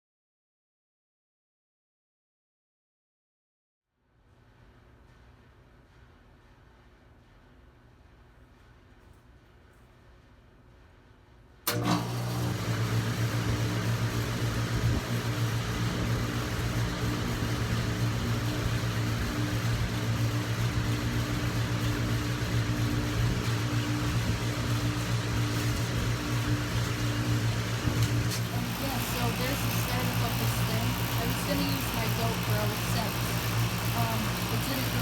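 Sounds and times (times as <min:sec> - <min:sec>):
condenser fan rushing: 0:04.5 - 0:35.0
compressor hum: 0:10.4 - 0:35.0.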